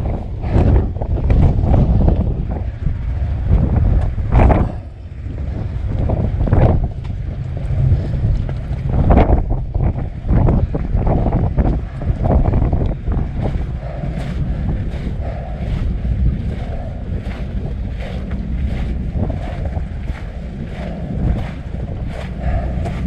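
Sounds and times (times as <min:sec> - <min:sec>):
wind buffeting microphone: 0:00.0 - 0:23.0
footsteps crunching: 0:12.3 - 0:23.0.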